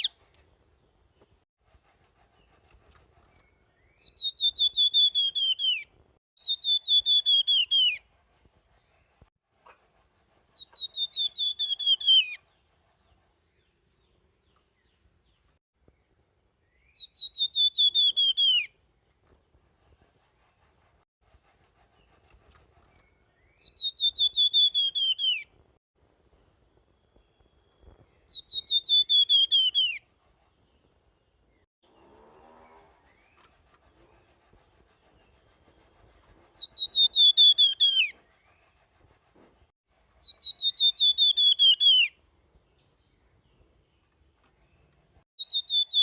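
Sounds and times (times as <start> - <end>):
songbird whistling: 3.4 - 8.0, 10.6 - 12.4, 16.7 - 18.8, 23.0 - 25.5, 27.2 - 30.0, 36.6 - 38.6, 40.2 - 42.2, 45.4 - 46.0.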